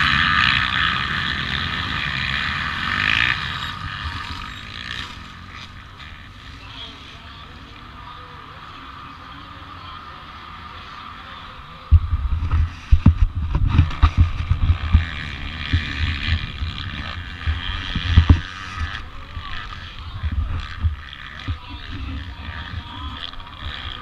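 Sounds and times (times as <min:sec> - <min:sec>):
dirt bike engine running: 0:00.0 - 0:24.0
low thumps on microphone: 0:11.9 - 0:15.1.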